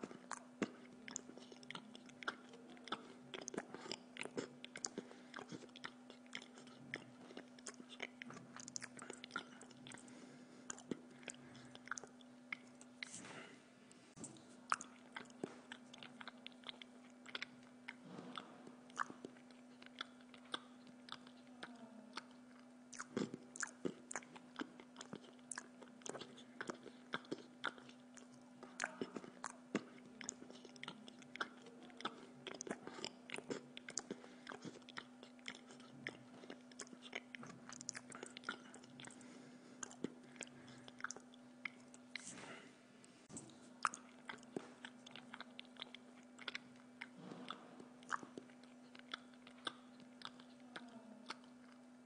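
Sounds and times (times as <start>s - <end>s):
person chewing food: 0.0s - 52.0s
steady low hum: 0.0s - 52.0s
mouth clicks and smacks: 14.2s - 42.4s, 43.3s - 51.8s.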